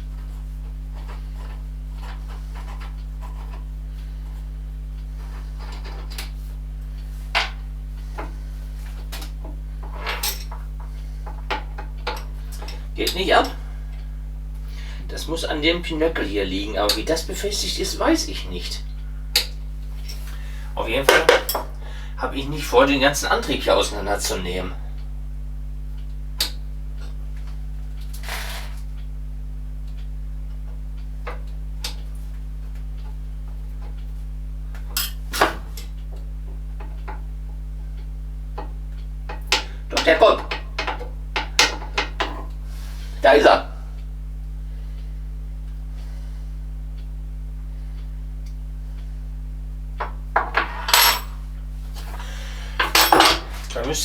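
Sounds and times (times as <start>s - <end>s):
low electrical hum: 0.0s - 54.0s
hand tools clinking on metal: 52.8s - 54.0s.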